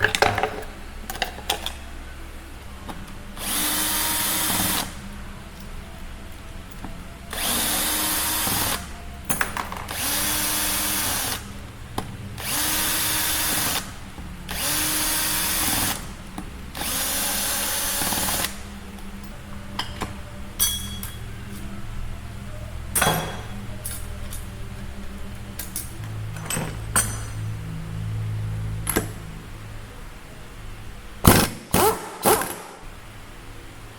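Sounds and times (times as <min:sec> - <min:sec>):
power drill motor whirring: 0:03.4 - 0:05.0, 0:07.3 - 0:08.9, 0:09.9 - 0:11.5, 0:12.4 - 0:13.9, 0:14.5 - 0:16.0, 0:16.8 - 0:18.6.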